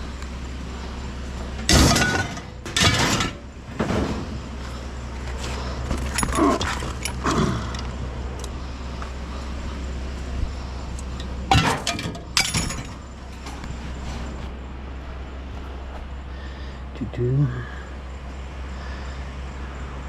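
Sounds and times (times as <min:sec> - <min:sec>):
steady low hum: 0:00.0 - 0:20.0
scrap metal clanking: 0:01.4 - 0:09.7, 0:11.0 - 0:16.0.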